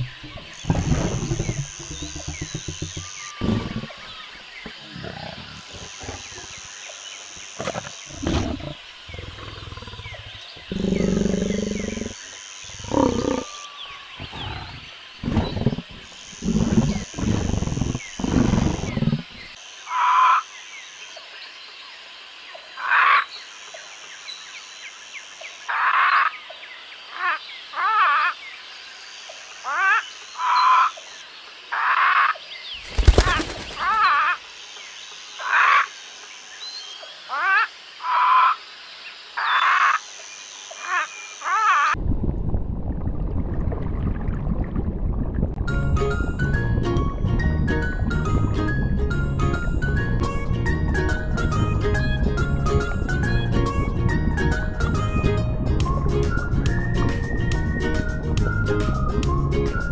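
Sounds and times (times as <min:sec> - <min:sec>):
animal roars and grunts: 0:00.0 - 0:06.6, 0:07.6 - 0:12.2, 0:12.8 - 0:13.6, 0:14.2 - 0:19.5.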